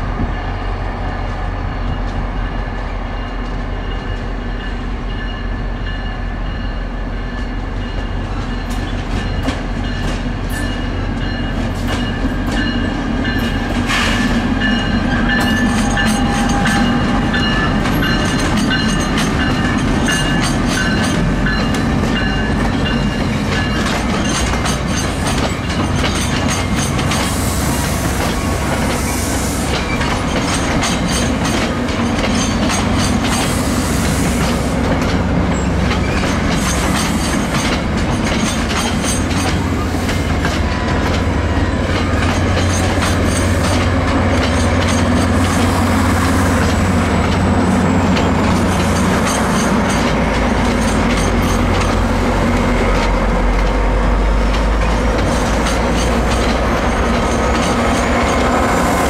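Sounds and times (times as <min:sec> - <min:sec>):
train wheels rumbling on rail: 0:00.0 - 0:59.0
wheels clicking over rail joints: 0:14.6 - 0:59.0.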